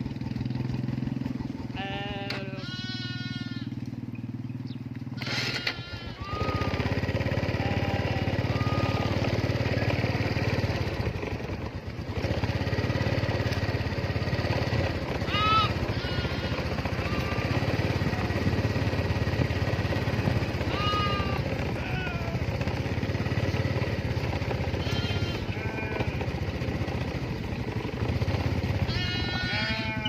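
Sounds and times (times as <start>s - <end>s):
low engine-like drone: 0.0s - 30.0s
sheep bleating: 1.7s - 3.8s, 5.2s - 10.9s, 15.1s - 24.0s, 24.7s - 26.8s, 28.7s - 30.0s.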